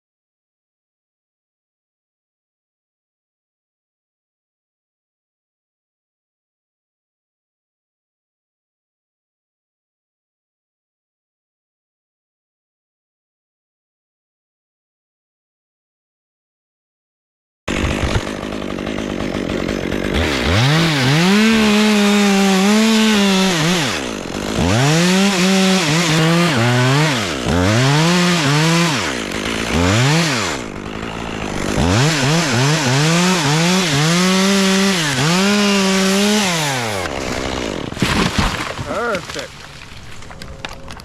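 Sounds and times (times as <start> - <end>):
chainsaw revving while cutting: 17.7 - 39.4.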